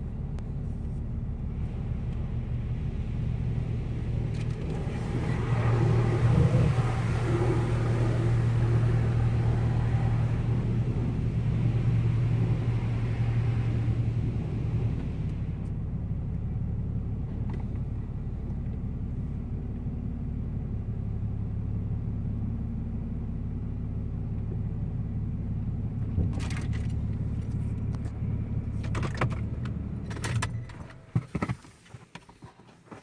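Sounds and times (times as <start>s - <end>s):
car wash low rumble: 0.0s - 31.8s
car wash hiss: 1.5s - 15.7s.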